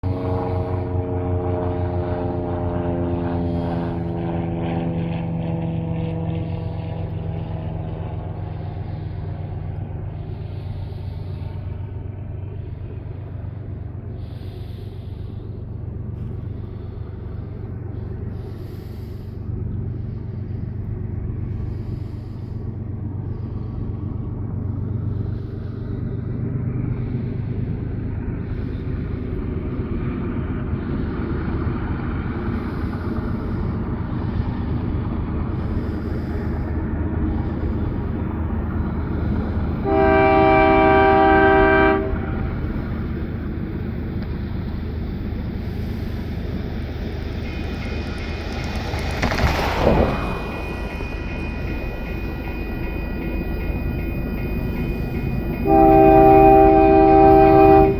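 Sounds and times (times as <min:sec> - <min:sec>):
locomotive air horn chord: 0:00.0 - 0:05.1, 0:35.5 - 0:44.2, 0:51.0 - 0:57.9
diesel locomotive engine rumble: 0:00.0 - 0:57.9.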